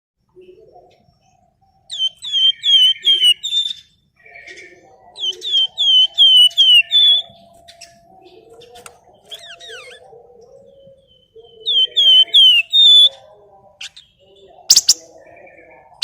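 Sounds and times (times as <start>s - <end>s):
faint low chatter: 0.2s - 16.0s
songbird whistled calls: 1.9s - 7.8s, 11.0s - 13.2s, 14.7s - 15.1s.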